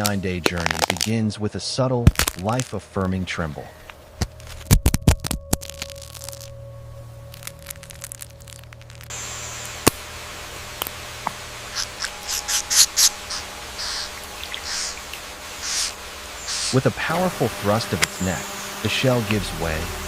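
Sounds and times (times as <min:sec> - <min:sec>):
eggshell cracking: 0:00.0 - 0:01.2, 0:02.0 - 0:02.8, 0:04.2 - 0:06.6, 0:07.3 - 0:10.0
rainforest ambience hiss: 0:00.0 - 0:20.0
high insect buzzes: 0:04.0 - 0:20.0.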